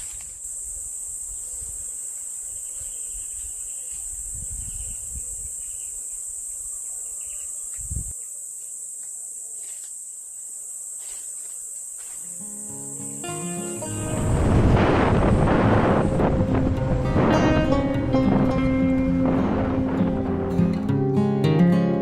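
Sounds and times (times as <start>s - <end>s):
insects chirring: 0.0s - 22.0s
low rumble: 13.8s - 21.2s.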